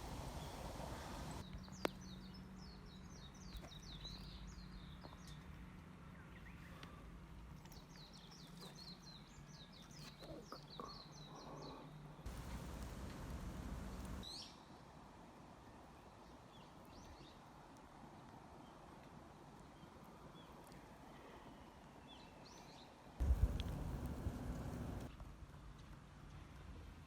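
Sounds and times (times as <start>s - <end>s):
songbird chirping: 0.0s - 5.4s, 7.6s - 14.6s
low outdoor hum: 0.0s - 14.3s, 23.2s - 27.0s.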